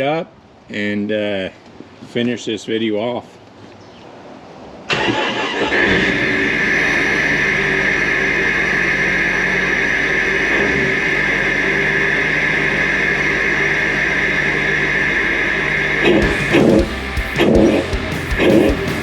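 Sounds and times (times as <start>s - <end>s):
car engine idling: 4.9s - 19.0s.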